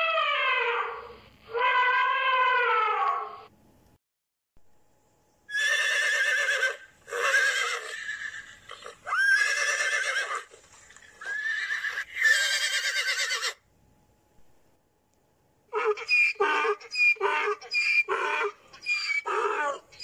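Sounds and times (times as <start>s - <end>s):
horse whinnying: 5.5s - 13.6s, 15.8s - 20.0s.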